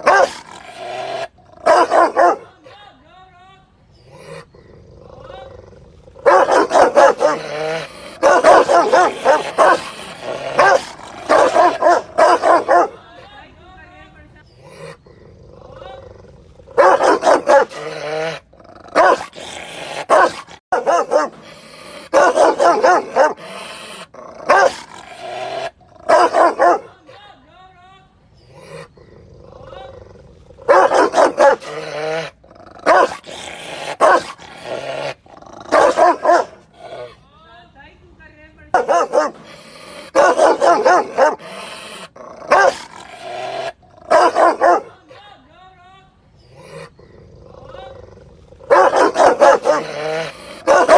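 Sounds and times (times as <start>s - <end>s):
dog barking angrily: 0.0s - 2.6s, 6.1s - 13.0s, 16.7s - 27.0s, 30.6s - 37.1s, 38.7s - 45.0s, 48.6s - 50.9s.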